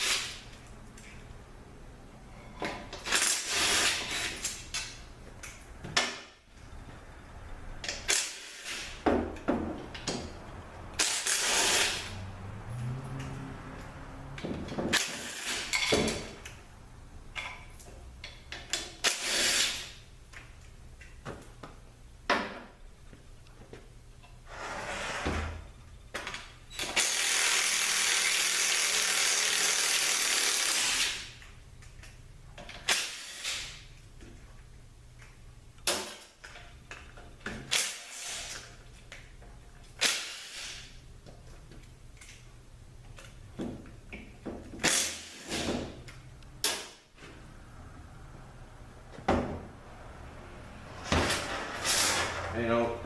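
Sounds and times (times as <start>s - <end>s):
power wrench spinning bolts: 26.8s - 31.4s.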